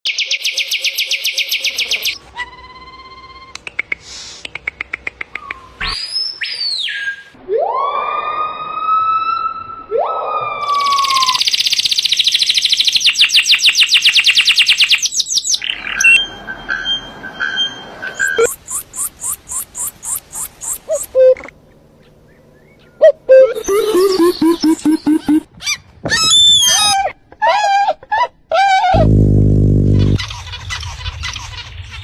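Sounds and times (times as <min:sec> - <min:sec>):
bird trill: 0:10.6 - 0:21.3, 0:22.0 - 0:25.4
bird whistles: 0:18.2 - 0:21.5
birds calling: 0:18.2 - 0:27.9.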